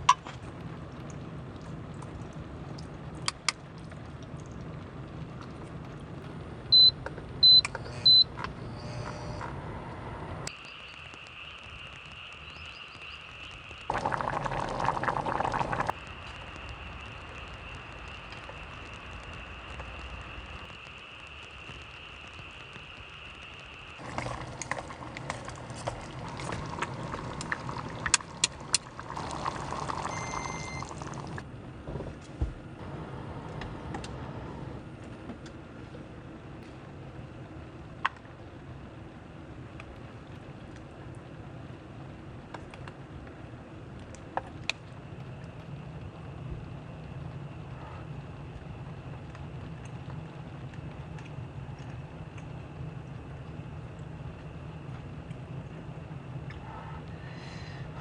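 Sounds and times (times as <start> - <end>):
liquid pouring: 13.9 - 15.9, 24.0 - 31.4
steady high whine: 32.7 - 35.4.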